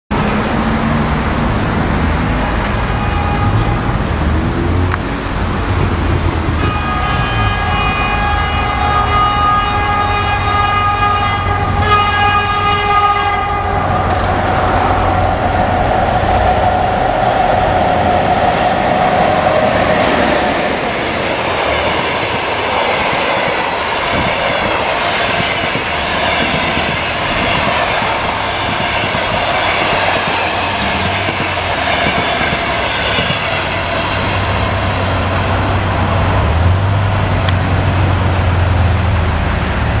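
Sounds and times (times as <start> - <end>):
electric locomotive running past: 0.3 - 40.0
locomotive horn blast: 2.3 - 15.4
wheels clattering on rails: 20.8 - 39.1.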